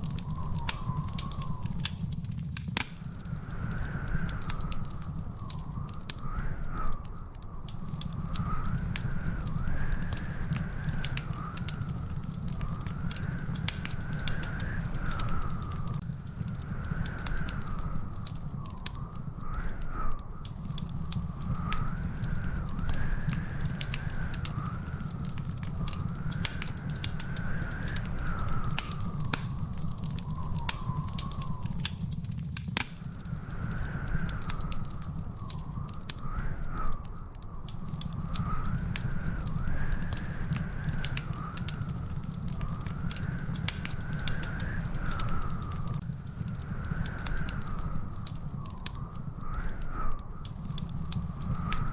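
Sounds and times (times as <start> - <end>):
wavering whistle-like tone: 0.0 - 1.9
wood fire crackling: 0.0 - 51.9.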